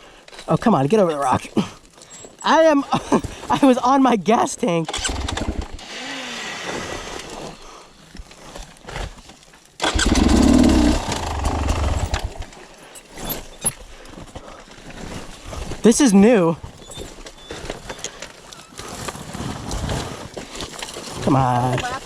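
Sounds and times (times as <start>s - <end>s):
dirt bike engine revving: 4.9s - 6.7s, 9.8s - 12.4s.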